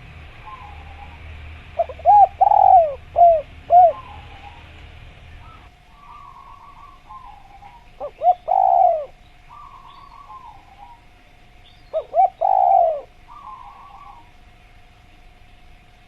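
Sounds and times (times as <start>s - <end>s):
dove cooing: 0.0s - 14.4s
faint rippling bird notes: 5.3s - 16.0s.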